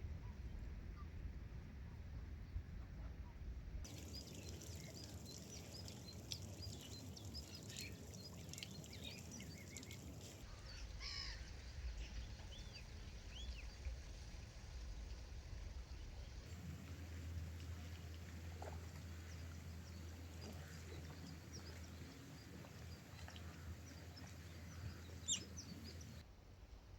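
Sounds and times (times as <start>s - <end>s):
low steady rumble: 0.0s - 26.9s
gulls calling: 3.9s - 11.6s, 16.6s - 26.2s.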